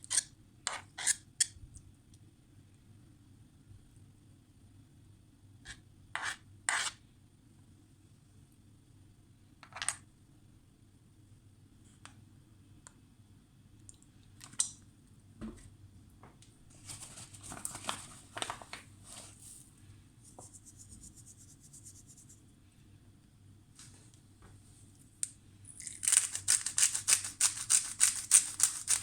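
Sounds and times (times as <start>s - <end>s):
scratchy rustling and scraping: 16.7s - 22.4s, 25.8s - 29.0s.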